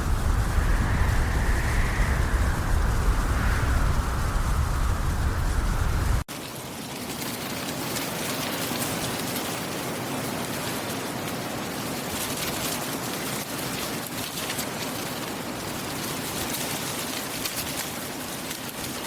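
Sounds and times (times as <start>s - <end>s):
rain falling: 0.0s - 6.3s.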